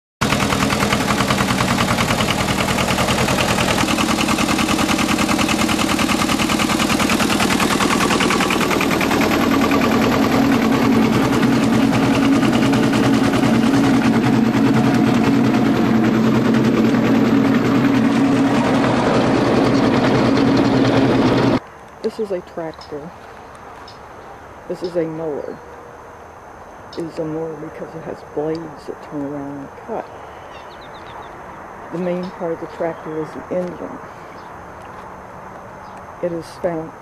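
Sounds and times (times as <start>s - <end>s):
tractor diesel engine chugging: 0.2s - 21.6s.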